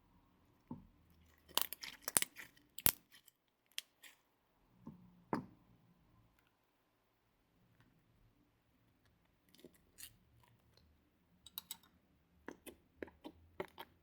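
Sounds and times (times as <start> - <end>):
slime crackling and popping: 1.5 - 4.1.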